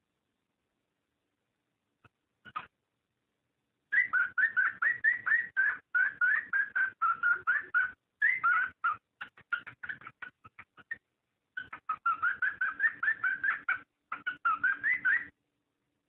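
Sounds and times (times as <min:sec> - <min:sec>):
cockatiel chirping: 0:02.5 - 0:02.7, 0:03.9 - 0:11.0, 0:11.6 - 0:15.4.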